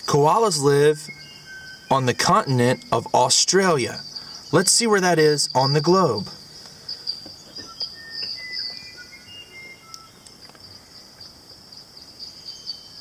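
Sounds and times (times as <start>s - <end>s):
crickets chirring: 0.0s - 13.0s
thin bird chirps: 0.0s - 13.0s.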